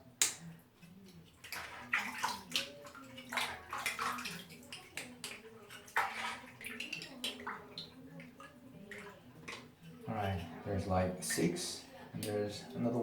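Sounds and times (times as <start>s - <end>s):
hands splashing in water: 1.4s - 9.7s.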